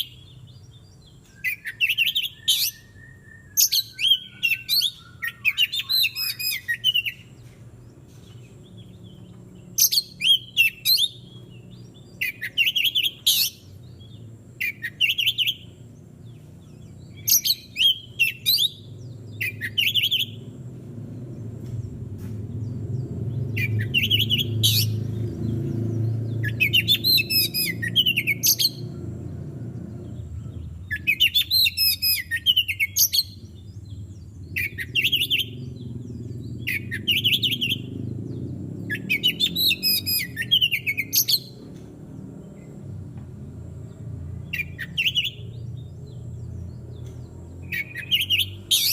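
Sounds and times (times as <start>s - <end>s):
bird singing whistled phrases: 1.3s - 7.3s, 9.8s - 11.4s, 12.2s - 13.7s, 14.6s - 15.7s, 17.1s - 20.5s, 23.5s - 25.0s, 26.3s - 28.8s, 30.8s - 33.4s, 34.6s - 35.7s, 36.6s - 37.9s, 38.9s - 41.6s, 47.6s - 48.9s
low rumble: 33.3s - 39.0s.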